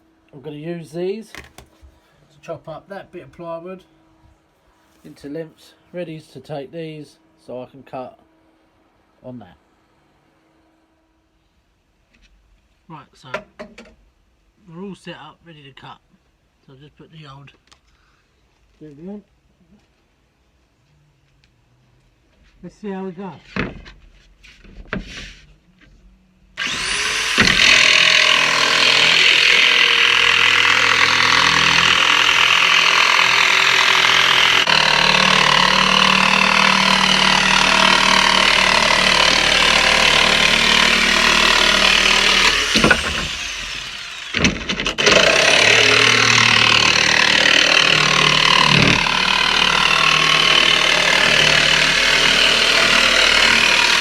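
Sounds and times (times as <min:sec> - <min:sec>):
jigsaw cutting plywood: 0:26.6 - 0:54.0.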